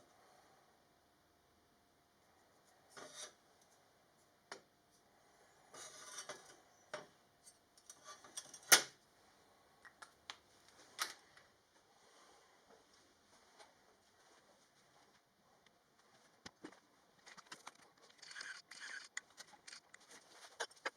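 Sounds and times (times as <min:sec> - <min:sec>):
metal tools handled on workbench: 0:05.8 - 0:08.8.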